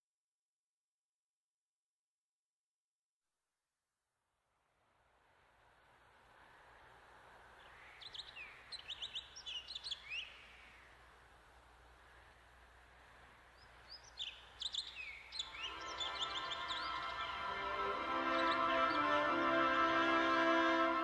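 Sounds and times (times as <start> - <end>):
soft steady hiss: 4.4 - 21.0
birds chirping: 6.5 - 21.0
orchestral music: 15.6 - 21.0.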